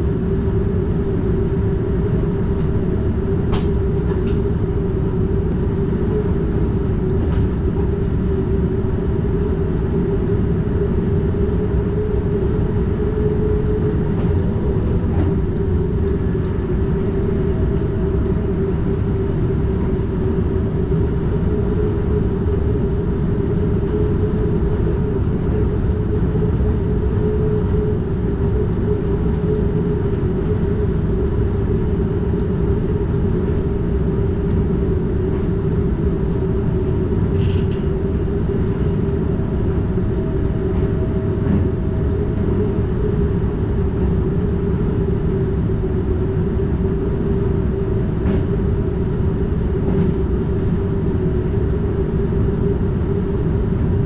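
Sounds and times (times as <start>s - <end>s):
steady hum: 0.0s - 54.0s
train wheels rumbling on rail: 0.0s - 54.0s.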